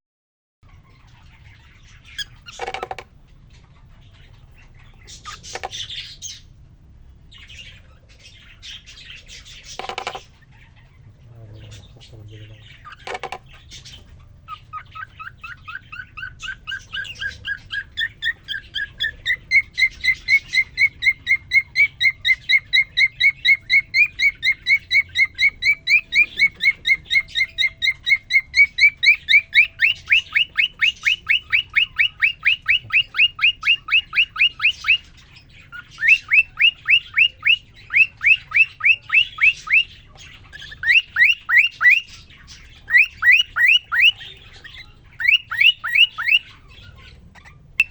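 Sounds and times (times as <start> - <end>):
cockatiel whistling chirps: 14.5 - 39.9, 40.5 - 47.9.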